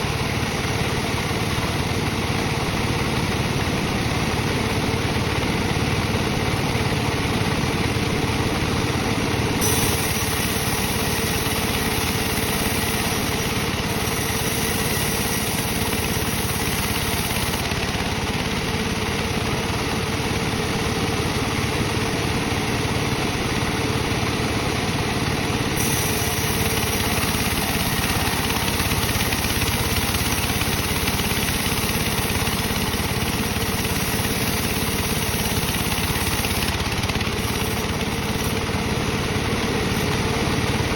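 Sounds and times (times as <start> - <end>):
bandsaw sawing wood: 9.6 - 19.7, 25.6 - 40.7.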